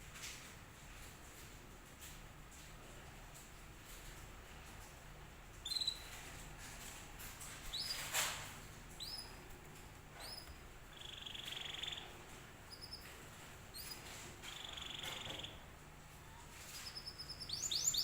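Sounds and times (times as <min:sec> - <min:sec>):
canary chirping: 0:05.6 - 0:06.2, 0:07.6 - 0:08.2, 0:09.0 - 0:09.4, 0:10.2 - 0:15.7, 0:16.5 - 0:18.0
canary buzzy trill: 0:10.2 - 0:15.7, 0:16.7 - 0:18.0.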